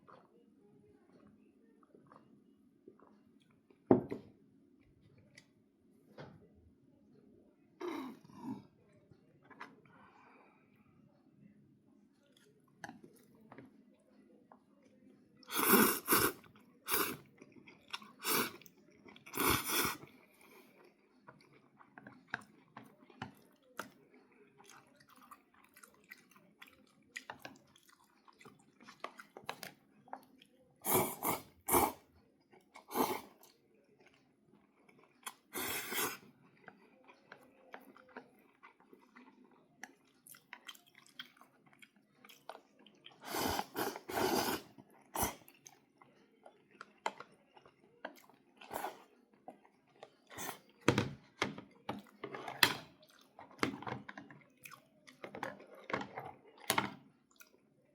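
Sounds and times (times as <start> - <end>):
person chewing food: 0.0 - 0.3, 2.0 - 2.2, 15.4 - 50.9, 51.9 - 57.6.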